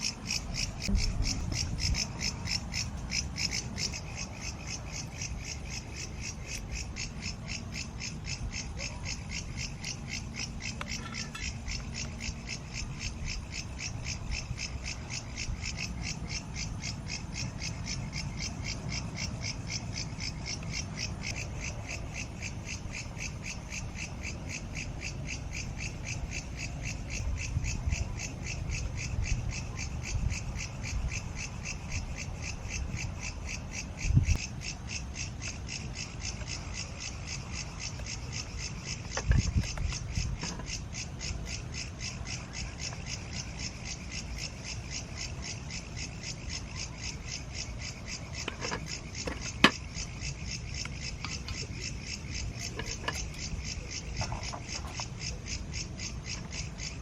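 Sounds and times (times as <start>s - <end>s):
night animals calling: 0.0s - 57.0s
low rumble: 0.7s - 2.2s
dull low thumps: 0.8s - 2.0s.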